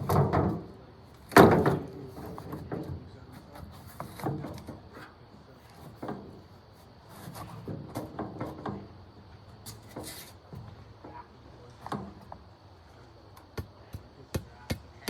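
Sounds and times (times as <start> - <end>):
wooden boards knocking and clattering: 0.0 - 3.0, 3.6 - 4.8.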